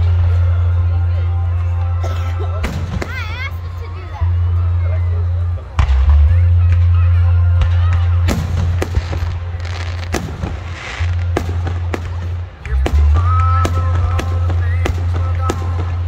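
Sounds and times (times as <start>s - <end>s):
fireworks bangs and crackles: 2.6s - 3.7s, 5.7s - 16.0s.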